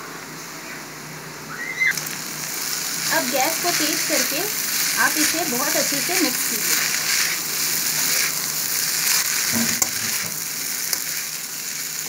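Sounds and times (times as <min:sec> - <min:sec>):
fried rice sizzling in a pan: 0:01.9 - 0:12.0
spatula scraping a pan: 0:03.0 - 0:12.0.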